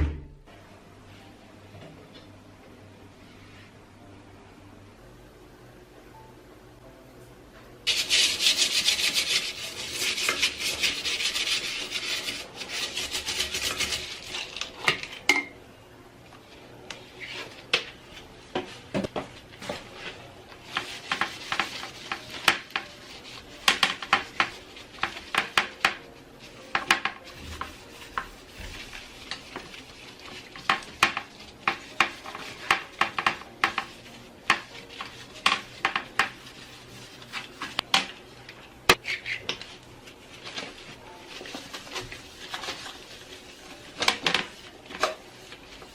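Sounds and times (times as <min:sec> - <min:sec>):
scrubbing a hard surface: 0:07.9 - 0:14.6, 0:19.7 - 0:38.1, 0:40.0 - 0:45.9.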